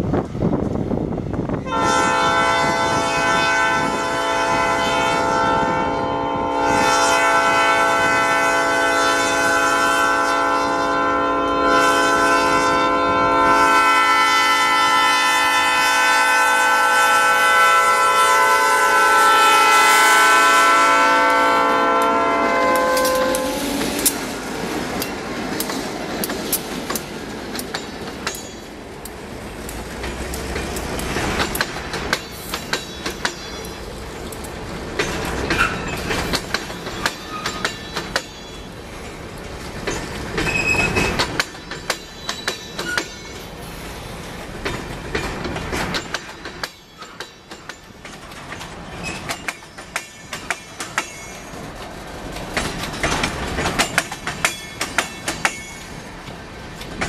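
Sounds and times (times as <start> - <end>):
wheels clicking over rail joints: 20.2 - 57.0
short high squeals: 40.4 - 41.2.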